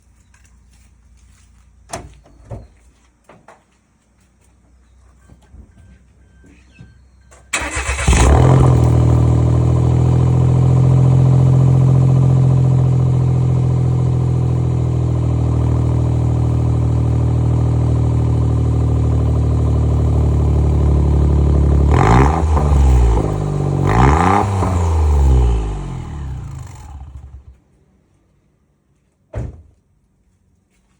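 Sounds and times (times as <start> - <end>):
car engine starting and idling: 7.3 - 27.6
engine revving in short blips: 7.5 - 9.8.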